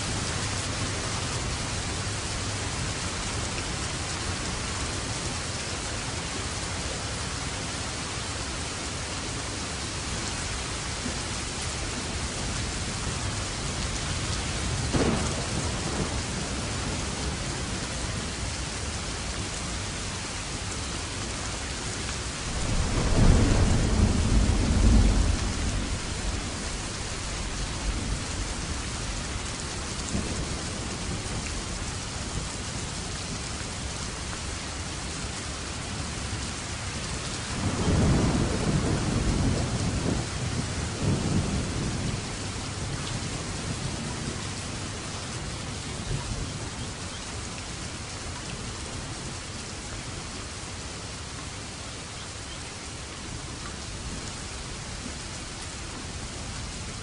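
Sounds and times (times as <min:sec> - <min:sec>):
heavy rain: 0:00.0 - 0:57.0
rolling thunder rumble: 0:13.1 - 0:18.4, 0:22.3 - 0:32.9, 0:36.8 - 0:45.0
thunder crack: 0:14.9 - 0:16.4, 0:22.5 - 0:26.5.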